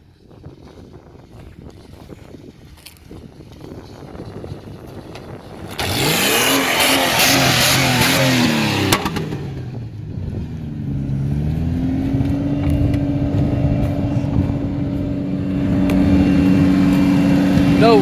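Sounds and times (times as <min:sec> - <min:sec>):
car engine revving in sand: 0:03.6 - 0:18.0.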